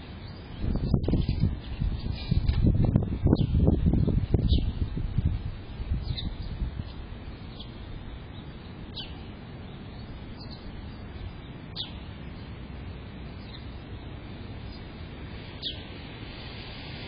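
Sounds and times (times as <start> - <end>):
low background noise: 0.0 - 17.0
high bird chirps: 6.0 - 12.5, 15.5 - 15.9.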